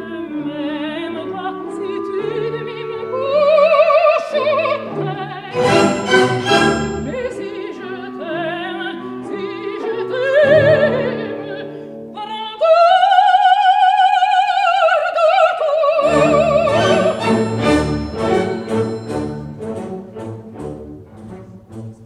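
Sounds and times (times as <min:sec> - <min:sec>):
operatic singing: 0:00.2 - 0:11.5, 0:12.2 - 0:21.9
orchestra playing: 0:05.5 - 0:07.7, 0:16.0 - 0:22.0.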